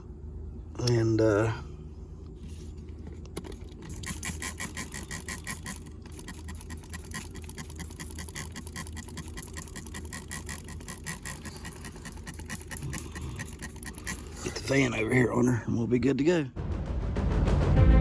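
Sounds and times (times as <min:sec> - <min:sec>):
spray bottle spritzes: 0:03.9 - 0:11.6.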